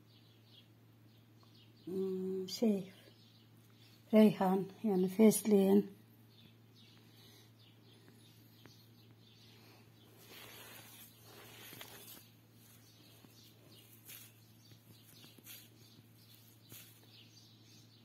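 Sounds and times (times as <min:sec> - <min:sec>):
faint bird chirps: 0:00.0 - 0:18.0
low steady hum: 0:00.0 - 0:18.0.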